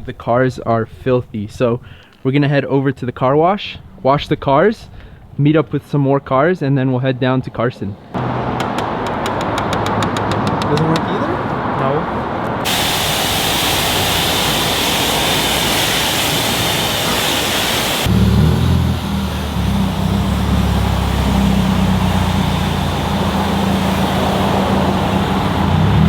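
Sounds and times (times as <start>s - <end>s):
car engine humming: 8.1s - 26.0s
pressure wand spraying water: 12.6s - 26.0s.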